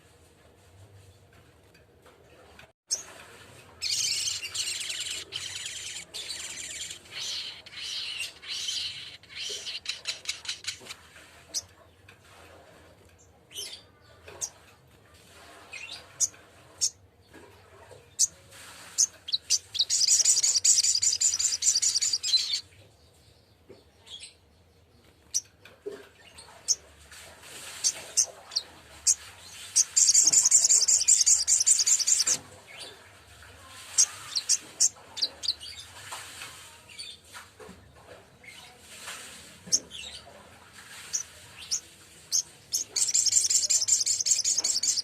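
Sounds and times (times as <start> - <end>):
bird trilling: 3.8 - 10.8, 19.3 - 22.6, 29.8 - 32.4, 41.1 - 45.0
bird chirping: 3.8 - 11.6, 18.2 - 25.5, 27.8 - 32.9, 40.9 - 45.0.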